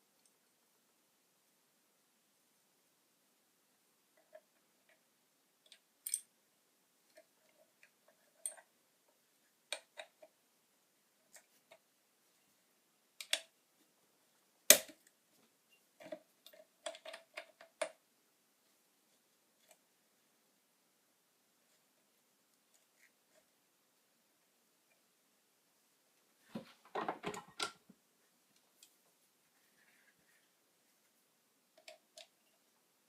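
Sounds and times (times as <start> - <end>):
small clicks and light knocks: 9.6 - 10.4, 13.2 - 13.9, 14.7 - 18.0, 31.7 - 32.7.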